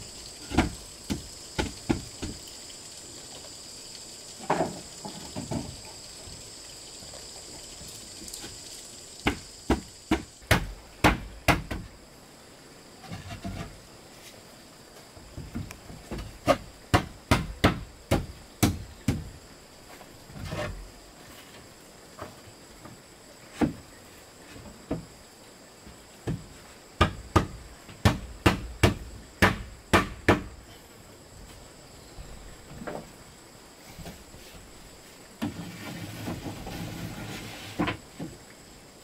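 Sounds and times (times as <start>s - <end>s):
hand tool striking wood: 0.4s - 2.4s, 9.2s - 11.9s, 15.5s - 19.3s, 26.2s - 30.5s.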